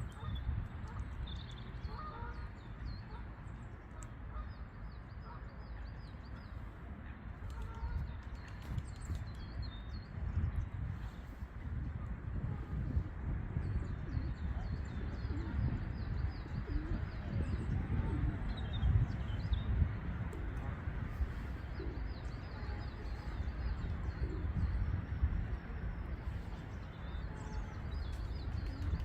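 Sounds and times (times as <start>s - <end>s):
constant low rumble: 0.0s - 29.0s
low cooing bird: 14.7s - 19.1s
birds twittering trill: 21.0s - 29.0s.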